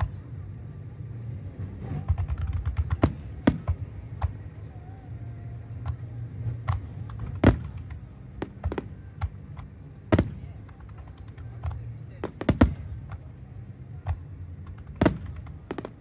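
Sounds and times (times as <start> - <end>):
low steady hum: 0.0 - 16.0
fireworks bursting: 1.6 - 16.0.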